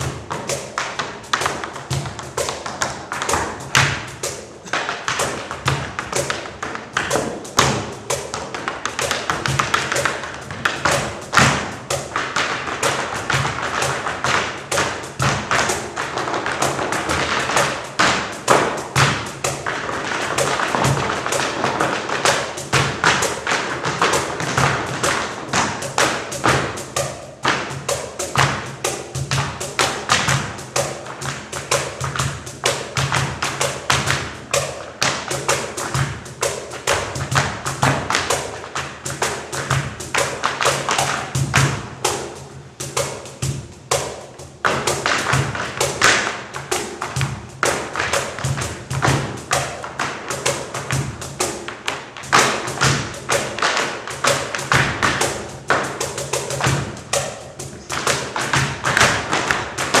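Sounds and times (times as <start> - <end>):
music with low beat: 0.0 - 60.0
tap shoes striking the floor: 0.0 - 60.0.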